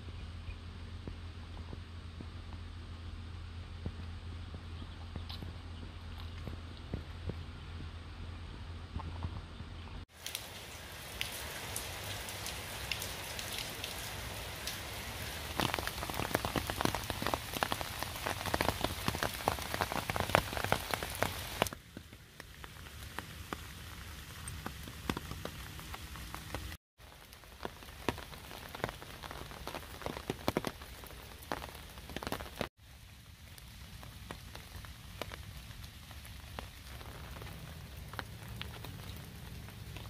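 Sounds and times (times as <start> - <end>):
rain falling: 10.0 - 40.0.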